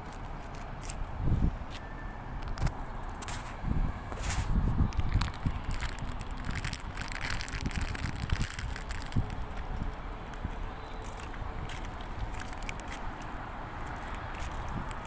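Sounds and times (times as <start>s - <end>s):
footsteps crunching on debris: 3.2s - 15.0s.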